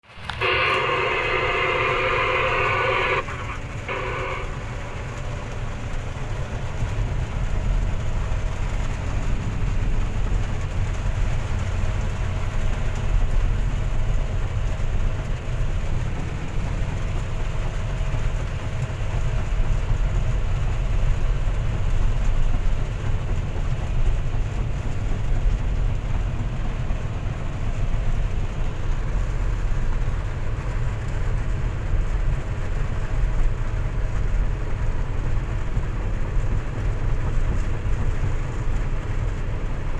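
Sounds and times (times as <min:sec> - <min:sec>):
heavy vehicle engine idling: 0:00.0 - 0:39.9
rain hissing: 0:00.1 - 0:06.0.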